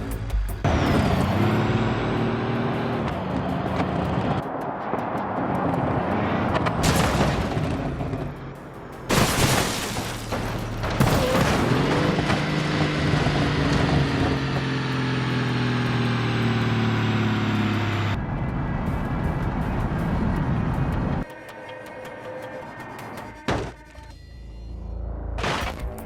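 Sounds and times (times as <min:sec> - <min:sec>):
loud vehicle crash impact: 0:06.8 - 0:08.2, 0:09.1 - 0:12.3.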